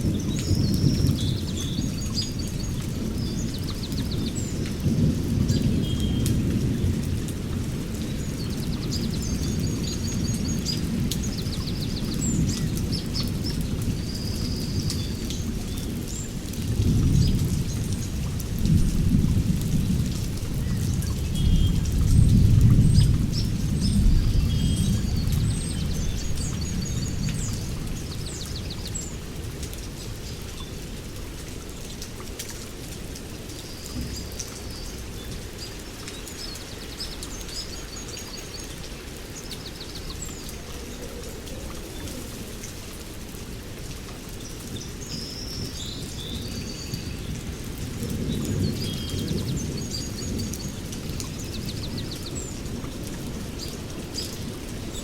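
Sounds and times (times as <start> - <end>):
steady rain: 0.0 - 55.0
songbirds chirping and trilling: 0.1 - 18.3, 19.8 - 30.8, 33.4 - 43.1, 44.4 - 55.0
rolling thunder: 15.9 - 28.8.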